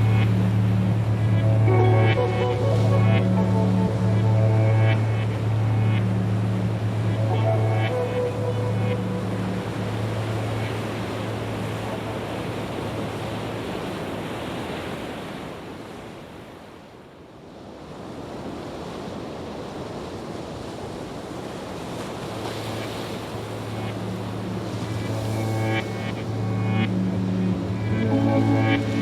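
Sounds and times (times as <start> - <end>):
low hum: 0.0 - 12.5, 23.3 - 29.0.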